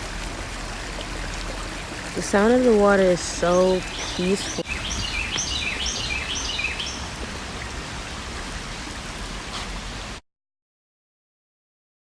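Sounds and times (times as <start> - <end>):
flowing water rushing: 0.0 - 10.2
bird chirping: 3.5 - 7.1.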